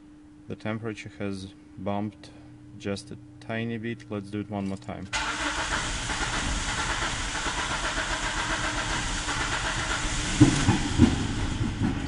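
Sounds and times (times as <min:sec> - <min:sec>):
engine cranking by starter: 0:05.2 - 0:12.0.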